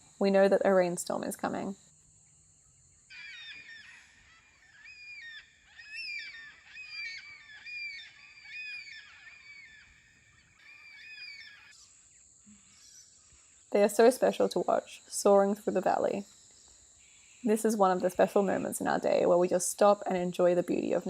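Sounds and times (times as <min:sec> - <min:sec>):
high insect buzz: 0:00.0 - 0:21.0
cockatoos calling: 0:03.1 - 0:11.9.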